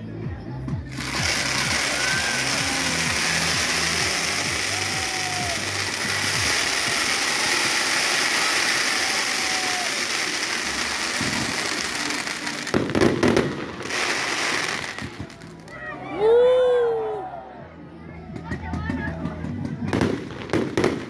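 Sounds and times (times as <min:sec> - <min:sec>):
fireworks crackling: 0:00.8 - 0:15.8, 0:19.7 - 0:21.0
loud firework bangs: 0:00.9 - 0:15.5.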